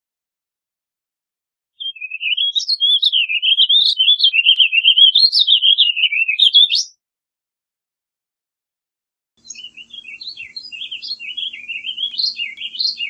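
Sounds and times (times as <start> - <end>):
bird warbling: 1.8 - 6.9, 9.4 - 13.0.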